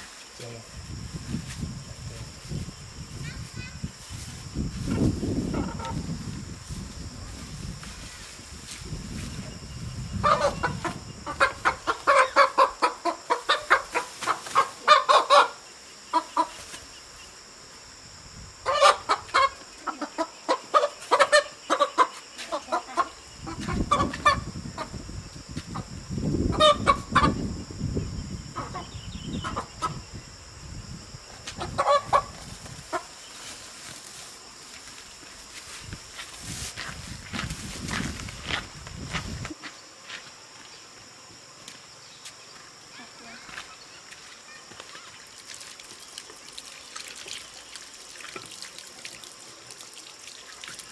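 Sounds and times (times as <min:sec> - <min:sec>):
chickens clucking: 0:04.9 - 0:06.0, 0:10.2 - 0:16.7, 0:18.7 - 0:25.0, 0:25.7 - 0:27.4, 0:28.5 - 0:30.1, 0:31.4 - 0:33.2.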